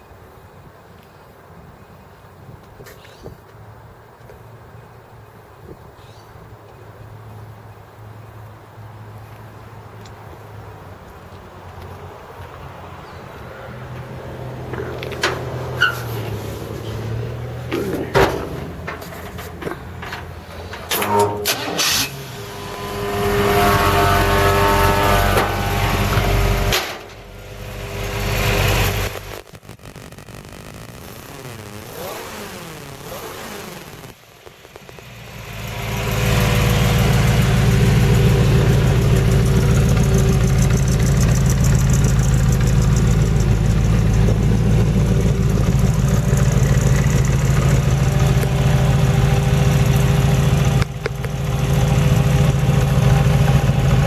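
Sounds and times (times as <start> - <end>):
pickup truck engine revving and idling: 14.0 - 29.5, 31.0 - 54.0.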